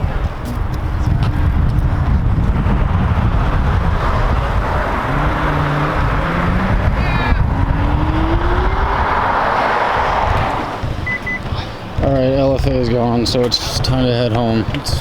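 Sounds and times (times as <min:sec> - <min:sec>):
car engine accelerating: 0:00.4 - 0:12.0.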